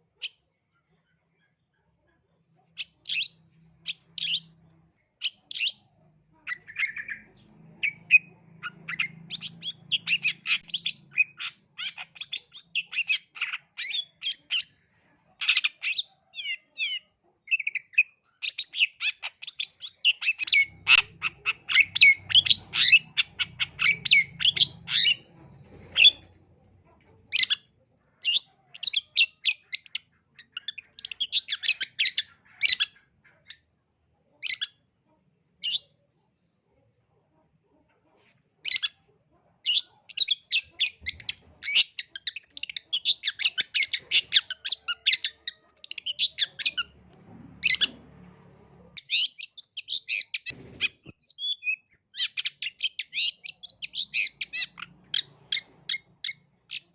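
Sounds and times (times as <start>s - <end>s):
bird singing with harsh squawks: 2.8s - 4.6s, 5.2s - 14.8s, 15.4s - 26.3s, 27.3s - 33.7s, 38.6s - 47.0s, 49.0s - 56.9s.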